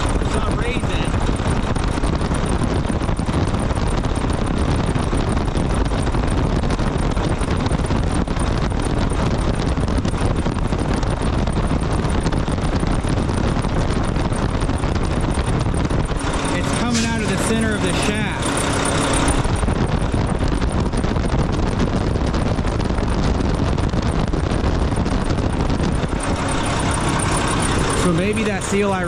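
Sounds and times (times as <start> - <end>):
diesel truck engine idling: 26.1 - 29.0.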